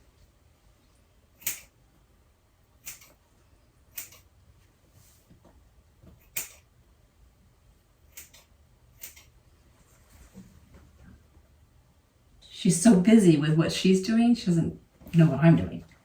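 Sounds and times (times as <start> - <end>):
scissors snipping feathers: 1.4 - 1.7, 2.8 - 3.2, 3.9 - 4.3, 6.2 - 6.7, 8.1 - 9.4.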